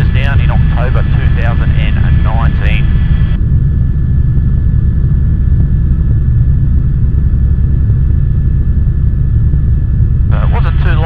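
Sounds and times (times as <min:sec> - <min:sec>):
helicopter drone from inside cabin: 0:00.0 - 0:11.0.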